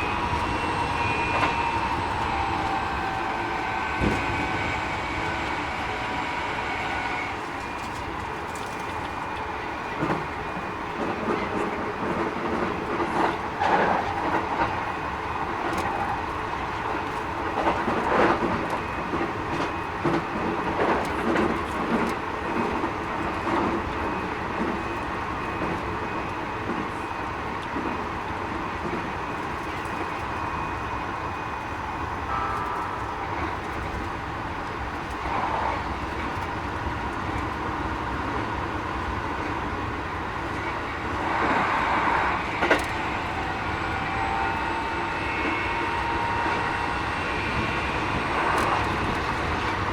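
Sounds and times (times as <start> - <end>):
train running: 0.0 - 49.9
high whining inverter tones: 29.1 - 35.6.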